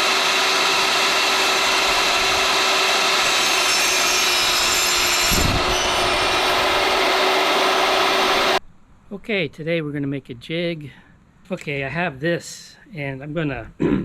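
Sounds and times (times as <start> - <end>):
power saw cutting wood: 0.0 - 8.6
saw blade whine: 0.0 - 8.6.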